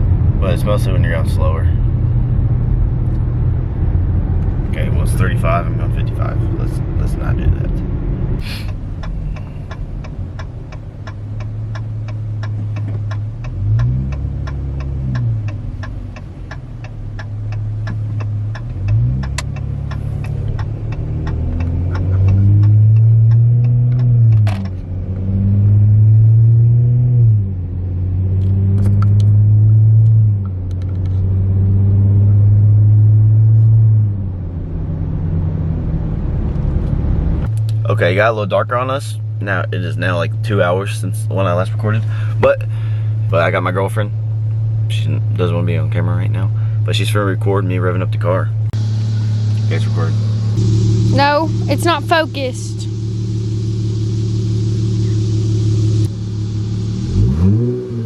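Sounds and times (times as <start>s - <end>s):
car exhaust drone: 0.0s - 58.0s
fast even ticking: 8.6s - 24.1s.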